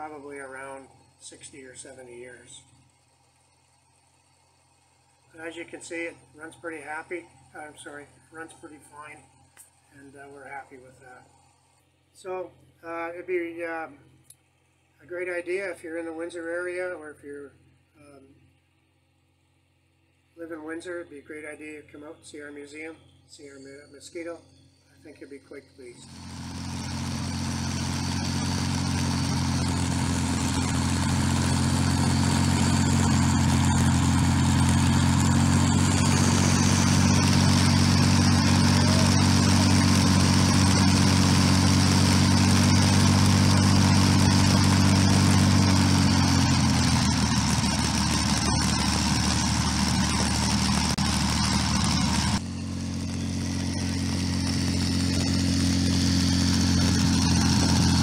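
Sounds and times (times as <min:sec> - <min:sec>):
aircraft engine running: 0:25.8 - 0:58.0.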